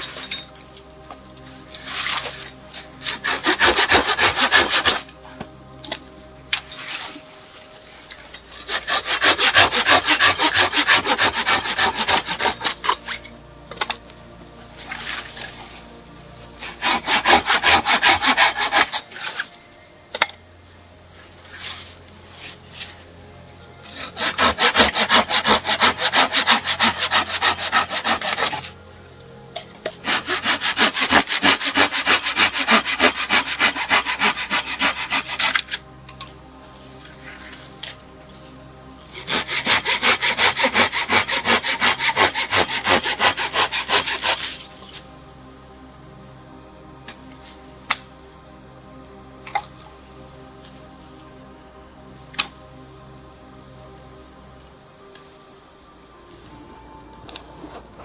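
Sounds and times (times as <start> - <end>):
hand saw cutting wood: 1.7 - 6.0, 8.4 - 13.9, 16.6 - 19.5, 23.9 - 28.8, 29.8 - 35.8, 39.1 - 45.0.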